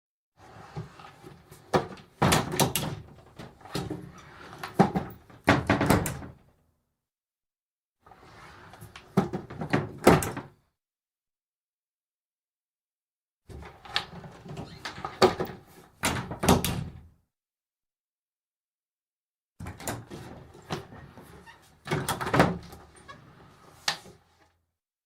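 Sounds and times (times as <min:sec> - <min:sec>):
wooden bifold door rattling: 0:01.8 - 0:03.6, 0:04.7 - 0:06.4, 0:13.6 - 0:17.1, 0:21.9 - 0:22.9.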